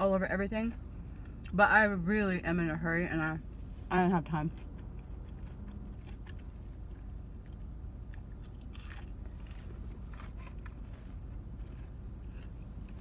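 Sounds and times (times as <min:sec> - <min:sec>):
person chewing food: 0:04.5 - 0:13.0.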